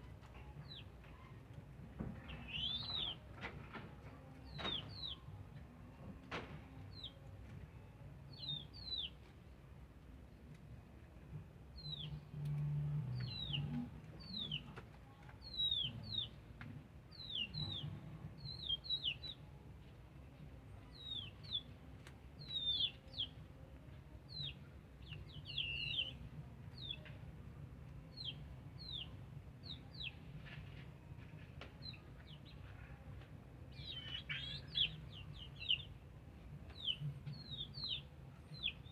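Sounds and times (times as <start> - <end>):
small birds chirping: 15.4 - 16.4, 17.1 - 19.4, 22.4 - 23.4, 24.3 - 26.2, 26.8 - 27.2, 28.1 - 30.5, 33.6 - 36.0, 36.6 - 38.9.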